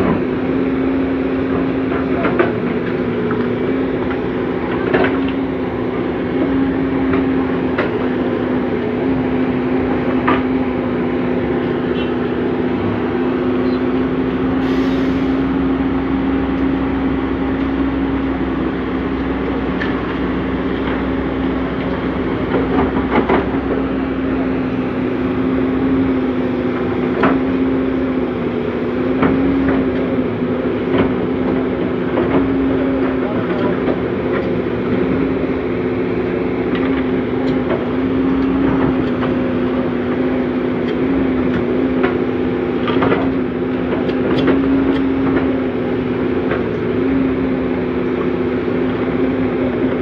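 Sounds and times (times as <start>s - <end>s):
excavator engine drone: 0.0s - 50.0s
hydraulic hiss: 14.6s - 15.4s.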